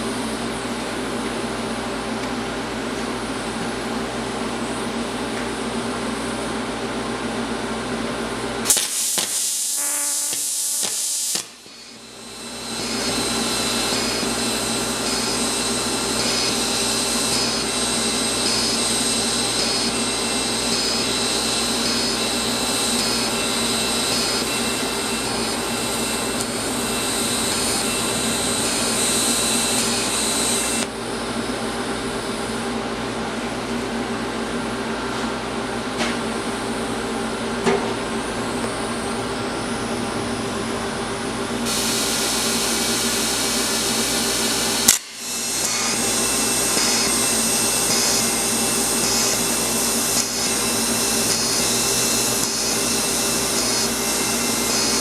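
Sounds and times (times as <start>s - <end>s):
motor whirring and humming: 8.7s - 30.9s, 41.7s - 55.0s.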